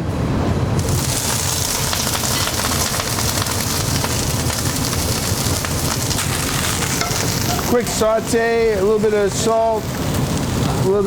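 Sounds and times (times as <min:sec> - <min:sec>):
vegetables sizzling in oil: 0:00.8 - 0:11.0.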